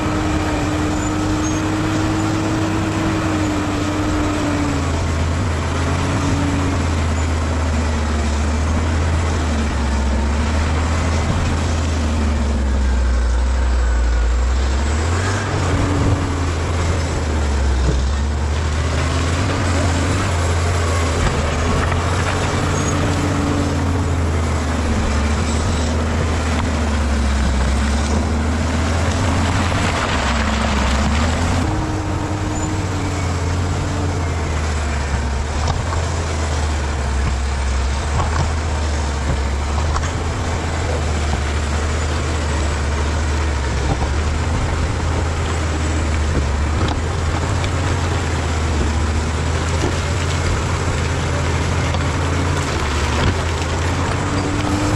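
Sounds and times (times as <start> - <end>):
bulldozer diesel engine rumbling: 0.0 - 54.9.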